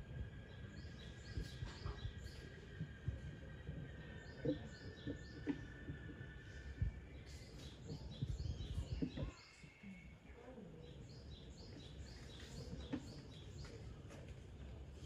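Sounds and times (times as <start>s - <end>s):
low rumbling thumps: 0.0s - 9.4s
small birds chirping: 0.0s - 14.8s
outdoor background noise: 0.0s - 15.0s.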